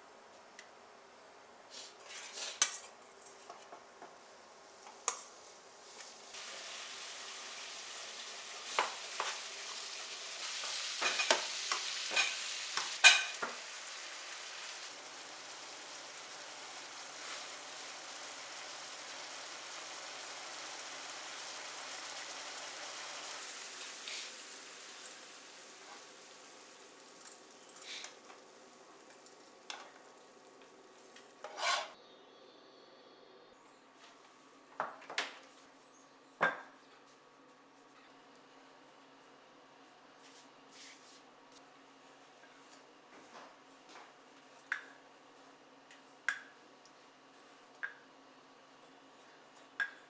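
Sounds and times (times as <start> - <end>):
food sizzling in a pan: 4.6 - 32.0
utensil scraping a pan: 31.4 - 32.0.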